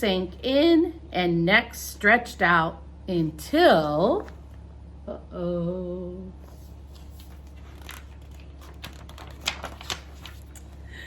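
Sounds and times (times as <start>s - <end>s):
steady low hum: 0.0s - 11.0s
paper pages rustling: 4.1s - 4.6s, 6.4s - 10.8s.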